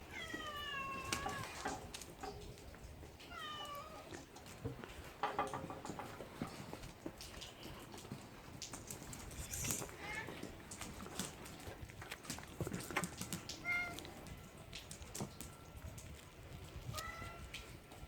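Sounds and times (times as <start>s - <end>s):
cat meowing: 0.0s - 1.7s, 3.2s - 4.2s, 13.6s - 14.0s, 16.9s - 17.6s
clicks and knocks: 4.7s - 6.7s.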